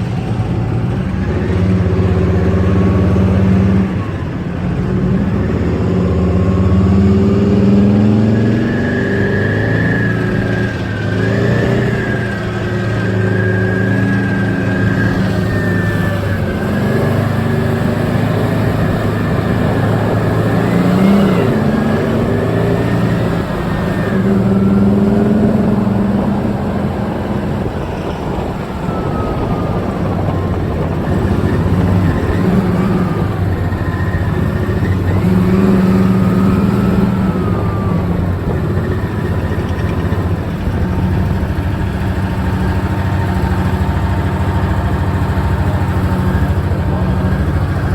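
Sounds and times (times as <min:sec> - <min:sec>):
tank diesel engine running: 0:00.0 - 0:47.9.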